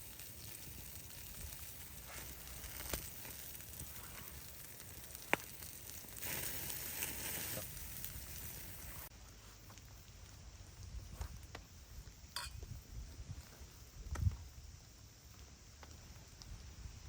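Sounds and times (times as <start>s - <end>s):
sharp pops from fire: 0.0s - 12.8s, 14.0s - 14.4s
campfire crackling and hissing: 0.0s - 17.0s.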